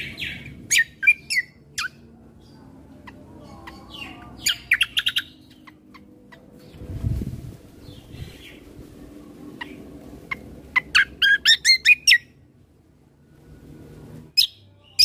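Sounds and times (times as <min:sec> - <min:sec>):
songbird chirping: 0:00.0 - 0:15.0
low rumble: 0:06.0 - 0:11.0.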